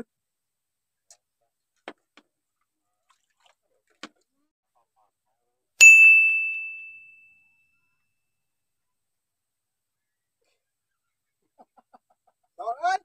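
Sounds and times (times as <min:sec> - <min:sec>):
bell-like ding: 0:05.8 - 0:07.7.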